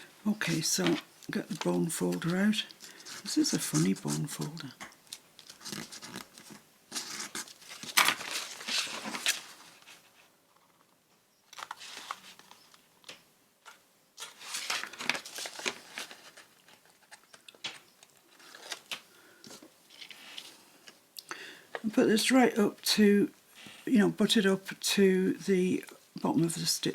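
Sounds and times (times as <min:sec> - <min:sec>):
paper and card crinkling: 0:00.3 - 0:10.9, 0:11.5 - 0:12.8, 0:13.6 - 0:21.0.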